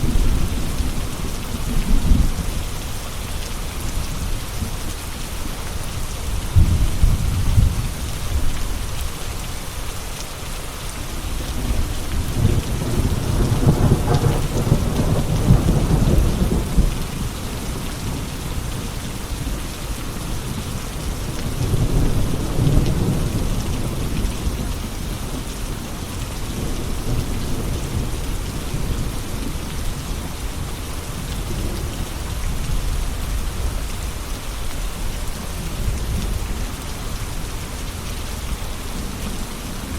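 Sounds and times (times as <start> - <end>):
heavy rain: 0.0 - 39.9
thunder rumbling: 6.5 - 8.5, 11.6 - 18.2.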